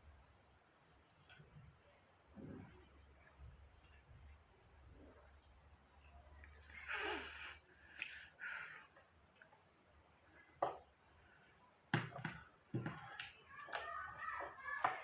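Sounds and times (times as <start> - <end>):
objects knocking and clicking: 11.9 - 15.0.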